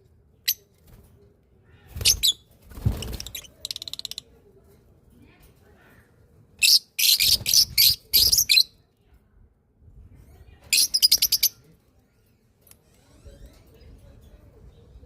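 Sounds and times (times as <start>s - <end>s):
small bird chirping: 10.7s - 13.7s.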